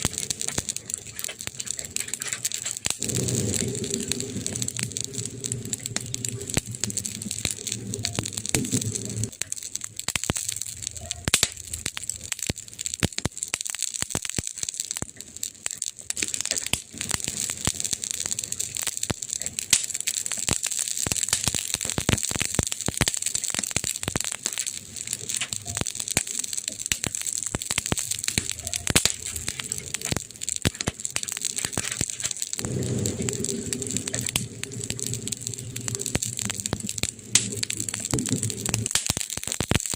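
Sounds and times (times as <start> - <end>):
wood fire crackling: 0.0 - 39.9
low rumble: 2.7 - 9.4, 31.4 - 38.9.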